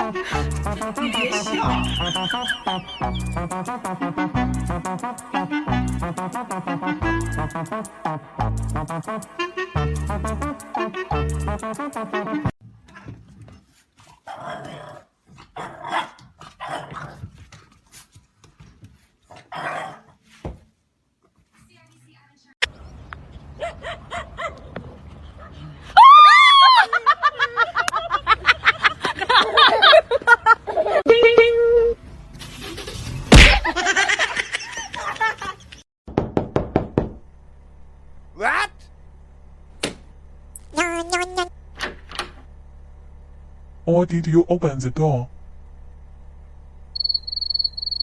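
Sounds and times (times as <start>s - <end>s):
dog barking roughly: 15.6s - 17.2s, 19.5s - 20.0s
loud thump: 33.3s - 33.7s.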